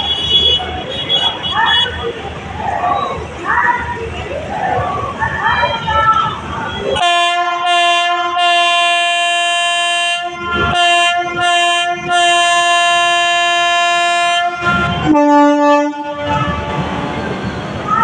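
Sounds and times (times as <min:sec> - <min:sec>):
lower-pitched train horn: 0:07.0 - 0:17.2
train horn blasts: 0:07.0 - 0:17.2.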